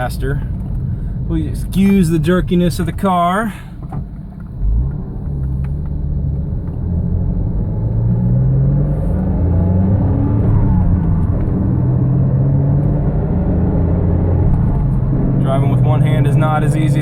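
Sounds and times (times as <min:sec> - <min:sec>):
road noise: 0:00.0 - 0:17.0
car engine accelerating: 0:03.9 - 0:17.0.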